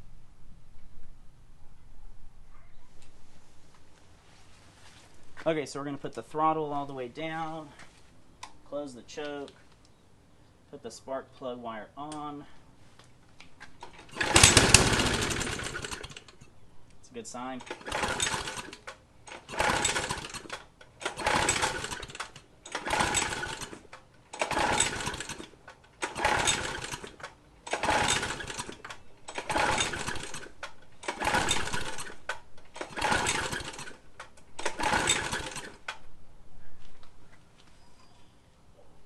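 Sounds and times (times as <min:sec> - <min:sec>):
mower engine surging: 0:13.9 - 0:16.4, 0:17.6 - 0:25.4, 0:26.0 - 0:34.0, 0:34.6 - 0:35.8.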